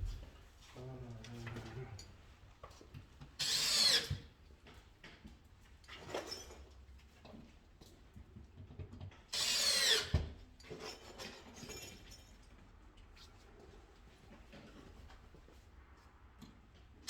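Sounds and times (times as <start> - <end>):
cordless drill running: 9.4 - 10.1.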